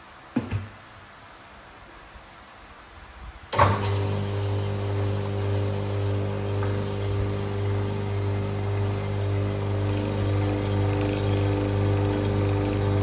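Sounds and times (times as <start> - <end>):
electric machine humming: 3.6 - 13.0.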